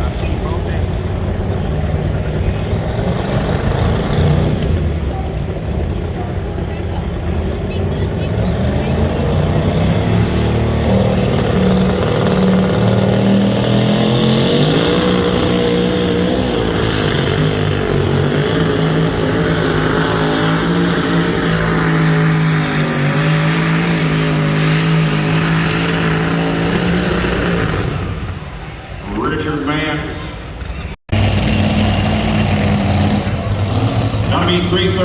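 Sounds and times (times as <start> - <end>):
truck engine at high revs: 0.0 - 35.0.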